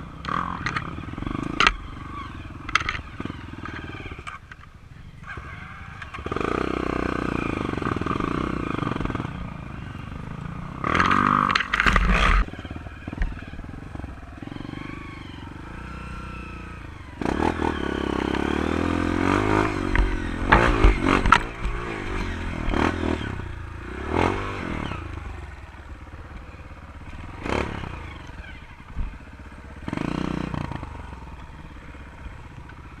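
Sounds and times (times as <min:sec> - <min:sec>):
trail bike engine revving: 0:00.0 - 0:33.0
sharp knocks and clatters: 0:19.8 - 0:22.1.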